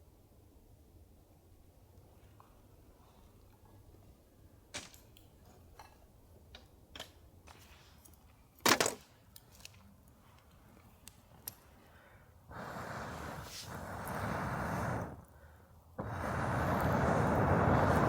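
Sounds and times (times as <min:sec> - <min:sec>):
small clicks and light knocks: 0:04.8 - 0:11.8.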